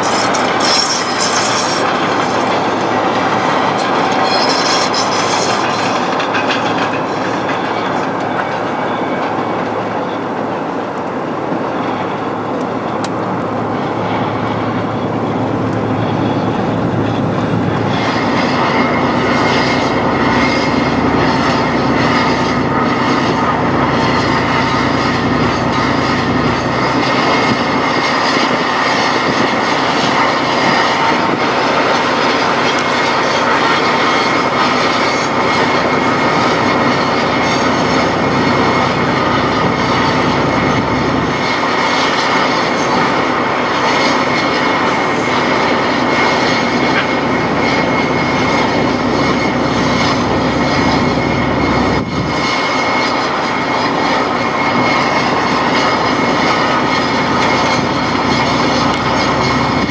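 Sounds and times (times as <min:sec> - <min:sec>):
train wheels clickety-clack: 0:00.0 - 0:11.2
steady hum: 0:00.0 - 0:59.9.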